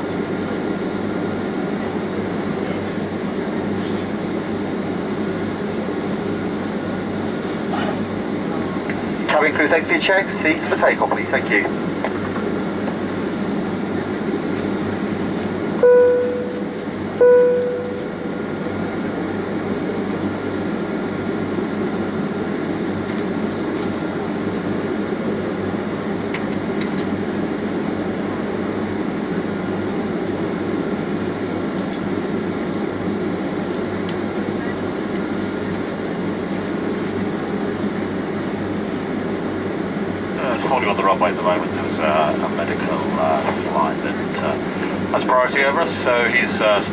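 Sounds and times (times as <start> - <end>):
air-conditioning noise: 0.0 - 46.9
aircraft engines idling: 0.0 - 46.9
chime dings: 15.8 - 16.6, 17.2 - 18.2.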